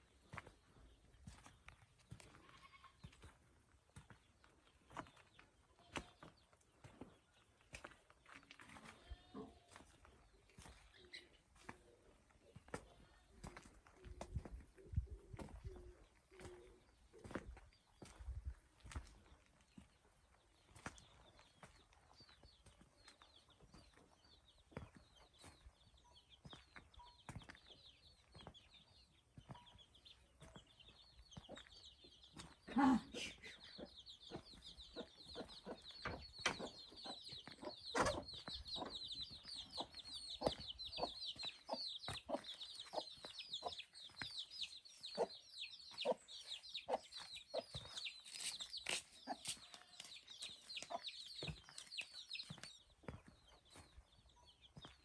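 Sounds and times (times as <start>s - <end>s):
chicks peeping: 8.9s - 55.0s
chickens clucking: 29.3s - 55.0s.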